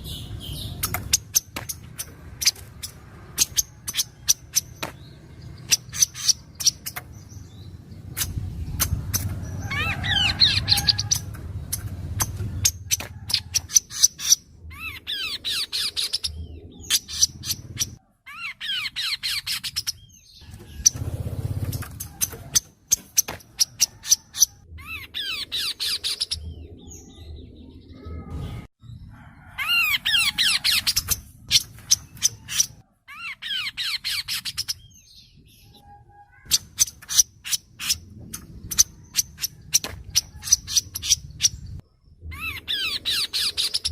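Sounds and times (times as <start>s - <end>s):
sharp ticking bird calls: 0.0s - 26.6s, 29.7s - 41.8s
songbird singing: 0.0s - 43.9s.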